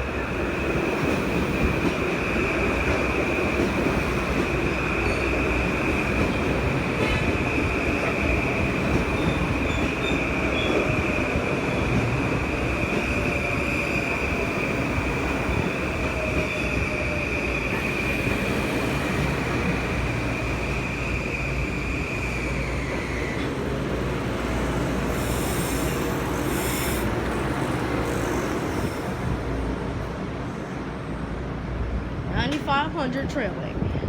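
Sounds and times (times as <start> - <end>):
train rumbling: 0.0 - 34.0
train wheel squeal: 3.6 - 12.0, 12.6 - 23.7, 24.7 - 29.5.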